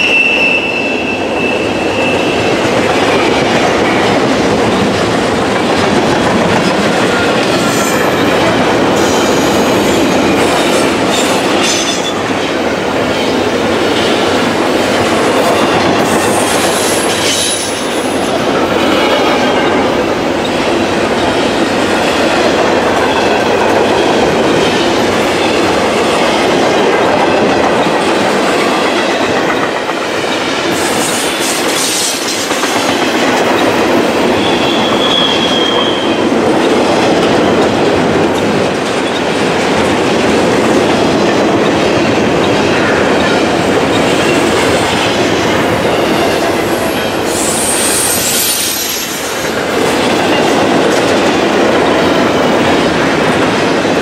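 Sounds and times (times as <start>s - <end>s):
freight train wheels rumbling: 0.0s - 54.0s
clickety-clack over rail joints: 2.0s - 54.0s
high wheel squeals: 34.4s - 36.2s, 45.8s - 49.3s.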